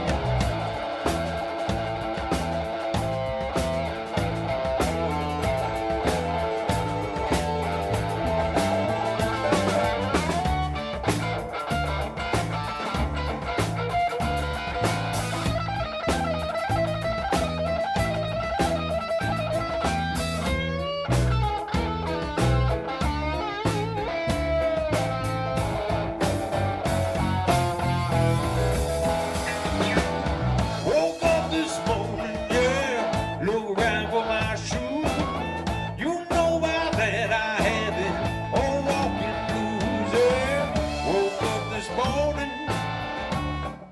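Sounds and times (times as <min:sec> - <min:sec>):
bass guitar: 0:00.0 - 0:43.9
electric guitar lead with bent notes: 0:00.0 - 0:43.9
steady drum beat: 0:00.0 - 0:43.9.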